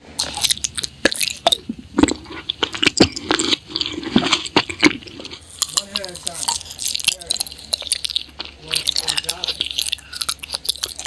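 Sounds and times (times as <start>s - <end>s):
chewing and crunching food: 0.0s - 11.0s.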